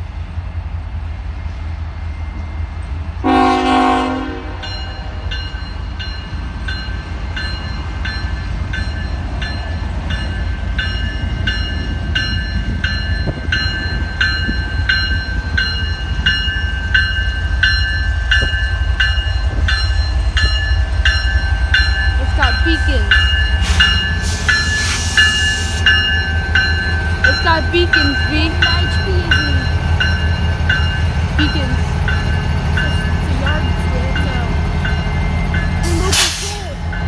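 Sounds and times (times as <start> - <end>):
diesel locomotives rumbling: 0.0 - 37.0
locomotive air horn blast: 3.2 - 4.7
bell ringing: 4.6 - 36.1.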